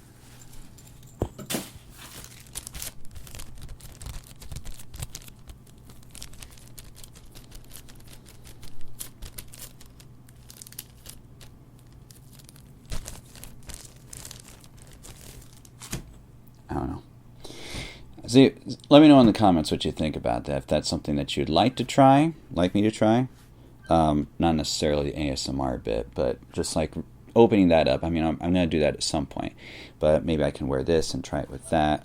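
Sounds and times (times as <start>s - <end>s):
faint low hum: 0.0s - 32.0s
plastic packaging crinkling and tearing: 1.6s - 16.1s.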